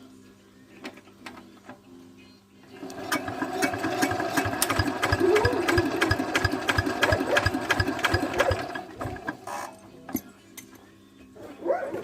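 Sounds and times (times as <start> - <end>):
diesel engine cranking by hand: 2.8 - 9.5.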